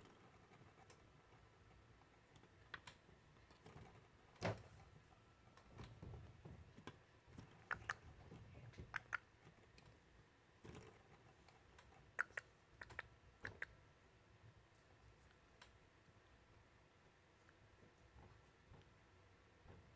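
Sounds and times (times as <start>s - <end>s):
sharp clicks: 7.7s - 8.0s, 8.8s - 9.3s, 11.8s - 13.7s.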